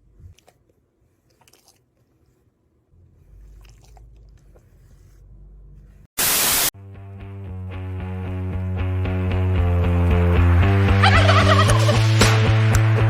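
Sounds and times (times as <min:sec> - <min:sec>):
static-like noise burst: 0:06.2 - 0:06.7.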